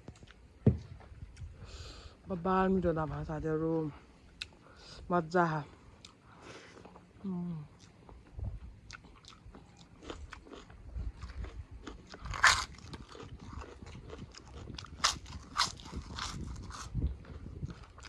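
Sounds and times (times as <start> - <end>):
crunchy chewing: 7.7 - 18.0.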